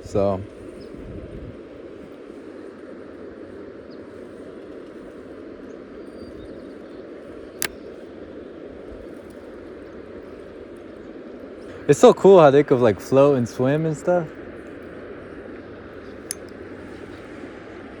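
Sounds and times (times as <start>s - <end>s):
sharp click: 16.1s - 16.6s.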